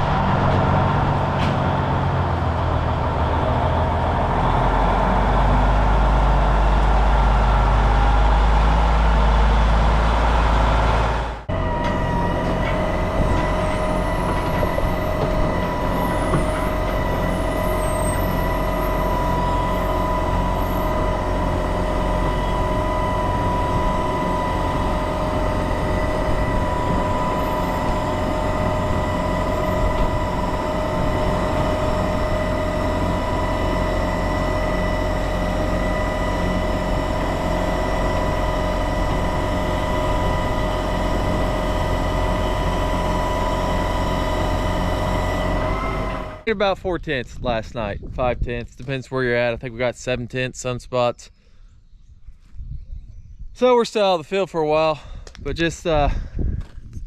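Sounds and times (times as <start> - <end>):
diesel machinery engine drone: 0.0 - 51.4
high even whine: 6.8 - 46.6.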